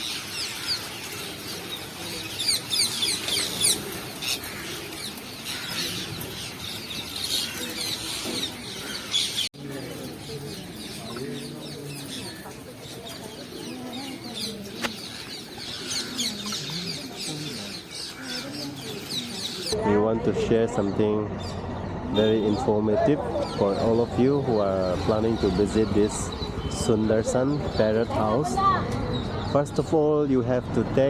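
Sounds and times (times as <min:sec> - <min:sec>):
flock of parrots screeching: 0:00.0 - 0:09.5, 0:13.2 - 0:19.8.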